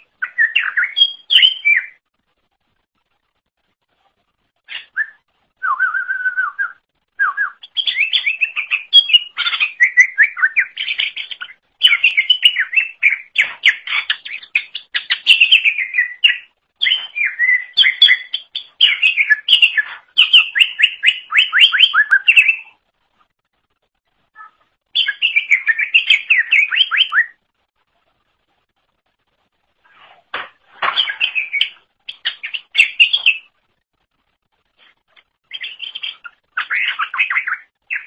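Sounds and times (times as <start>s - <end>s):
bird singing whistles and trills: 0.0s - 2.0s, 4.7s - 22.7s, 24.4s - 27.4s, 31.0s - 33.5s, 35.5s - 38.0s.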